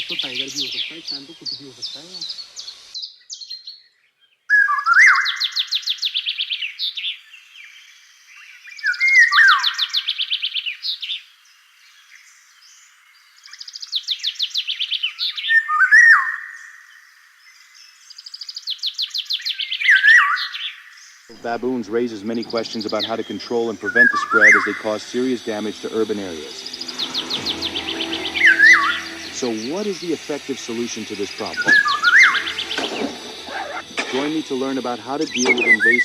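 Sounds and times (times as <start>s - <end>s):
bird singing high chirps: 21.4s - 36.0s.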